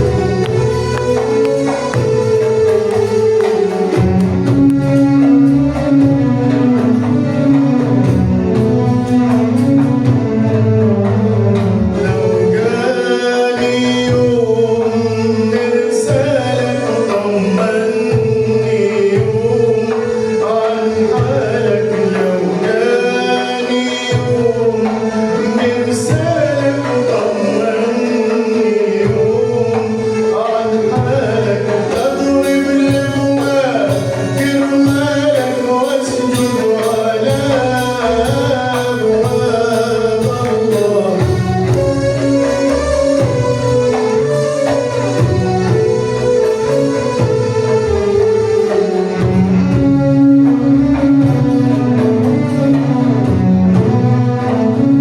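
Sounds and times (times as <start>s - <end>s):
small instrumental ensemble: 0.0s - 55.0s
man singing: 9.1s - 45.2s.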